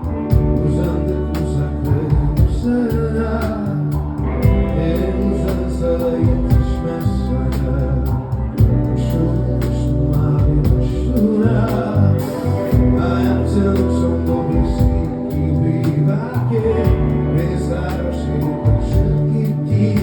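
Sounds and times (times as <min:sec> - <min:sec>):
bass notes: 0:00.0 - 0:20.0
person singing: 0:00.0 - 0:20.0
drum beat: 0:00.3 - 0:00.6, 0:02.1 - 0:02.8, 0:04.4 - 0:04.7, 0:06.3 - 0:06.9, 0:10.4 - 0:11.0, 0:12.8 - 0:13.0.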